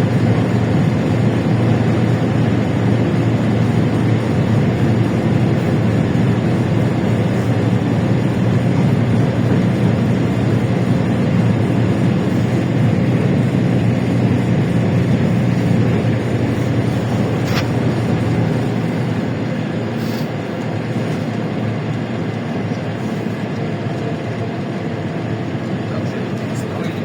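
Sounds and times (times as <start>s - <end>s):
bus engine humming: 0.0s - 27.0s
road noise: 0.0s - 27.0s.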